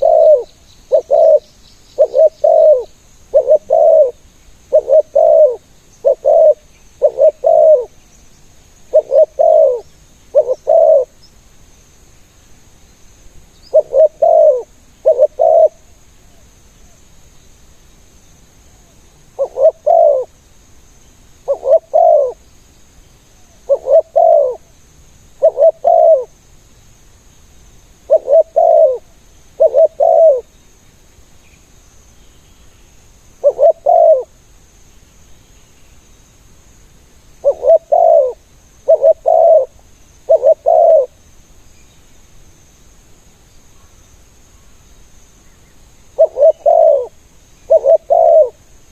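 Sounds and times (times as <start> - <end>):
dove cooing: 0.0 - 8.0, 8.9 - 11.2, 13.7 - 16.4, 19.4 - 20.4, 21.4 - 22.4, 23.4 - 24.7, 25.4 - 26.3, 28.1 - 30.5, 33.4 - 34.3, 37.4 - 41.2, 46.2 - 48.6.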